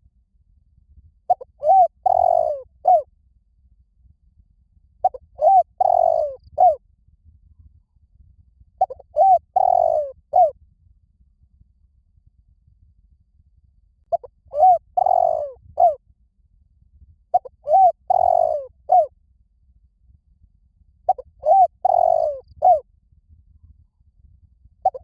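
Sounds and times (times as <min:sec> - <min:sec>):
dove cooing: 0:01.3 - 0:03.0, 0:05.0 - 0:06.8, 0:08.8 - 0:10.6, 0:14.1 - 0:16.0, 0:17.3 - 0:19.1, 0:21.1 - 0:22.8.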